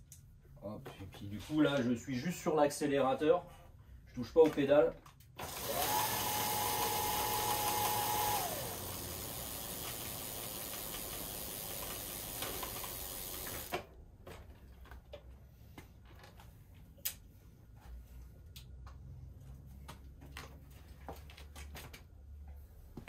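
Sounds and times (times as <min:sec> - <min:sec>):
electric bike motor whining: 0:05.4 - 0:13.8.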